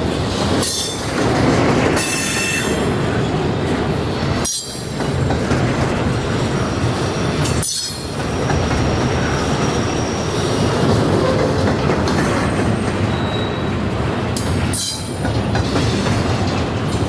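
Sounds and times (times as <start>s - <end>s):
railcar wheels rumbling on rails: 0.0s - 17.0s
faint high wheel squeal: 12.1s - 13.8s.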